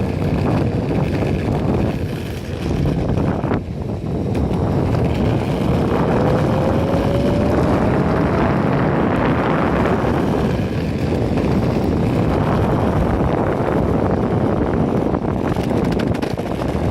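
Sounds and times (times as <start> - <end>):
electric skateboard rolling rumble: 0.0 - 16.9
wind buffeting microphone: 0.0 - 16.9
faint rising whine: 3.3 - 14.0.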